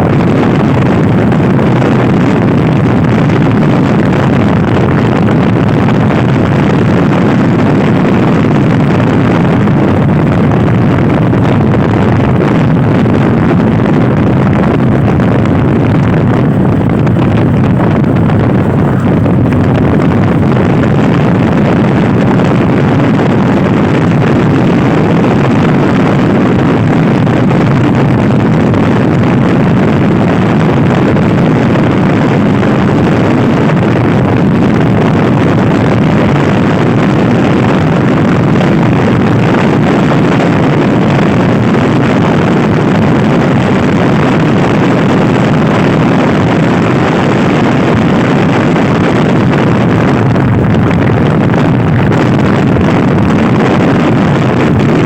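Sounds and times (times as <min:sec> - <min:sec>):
wind rushing over microphone: 0:00.0 - 0:55.0
scooter engine running: 0:16.5 - 0:21.5.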